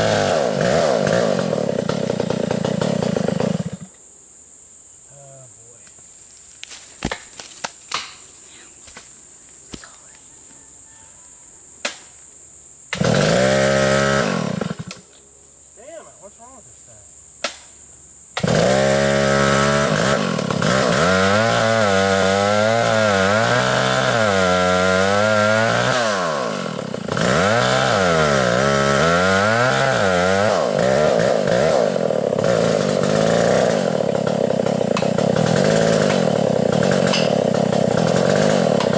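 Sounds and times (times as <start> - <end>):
chainsaw revving: 0.0 - 3.9, 12.9 - 15.0, 18.4 - 38.9.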